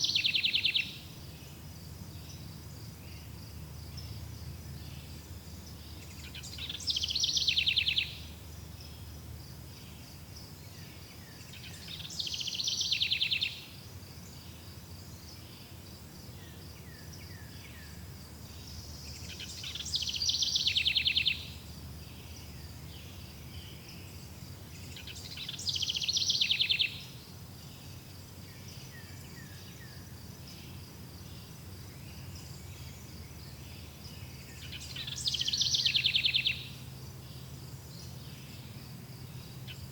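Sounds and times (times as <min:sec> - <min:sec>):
songbird trilling: 0:00.0 - 0:01.0, 0:06.0 - 0:08.3, 0:11.6 - 0:13.7, 0:19.0 - 0:23.9, 0:24.8 - 0:27.1, 0:33.5 - 0:36.8.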